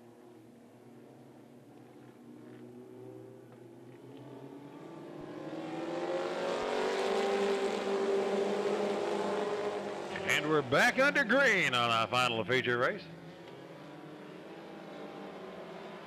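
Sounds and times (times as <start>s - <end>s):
race car engines passing: 0.1s - 16.0s.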